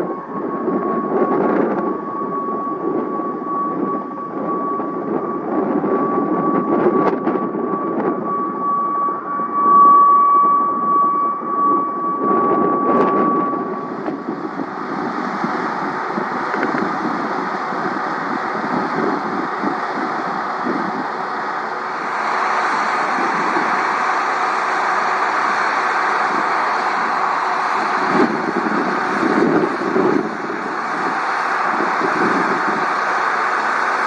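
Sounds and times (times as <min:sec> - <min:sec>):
aircraft engine running: 0:00.0 - 0:34.0
high whine: 0:00.0 - 0:34.0.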